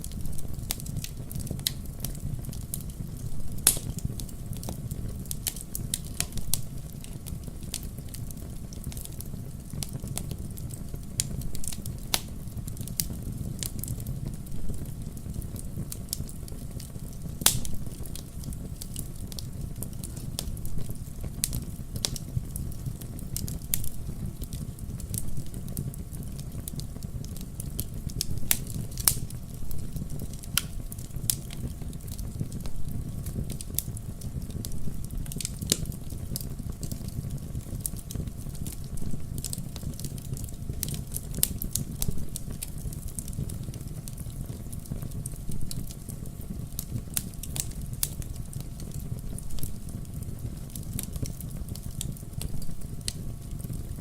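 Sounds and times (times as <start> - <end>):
campfire crackling and popping: 0.0 - 54.0
low rumble of burning: 0.0 - 54.0.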